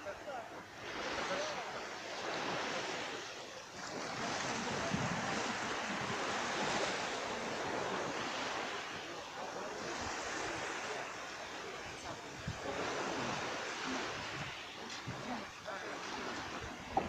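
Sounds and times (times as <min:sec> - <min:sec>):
small sea waves washing: 0:00.0 - 0:17.0.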